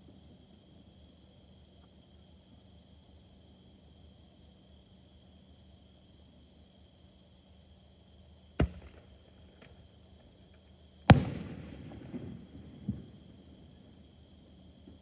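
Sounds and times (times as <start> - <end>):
fireworks pops: 8.6 - 9.8, 11.1 - 13.3
fireworks bangs: 11.1 - 13.8.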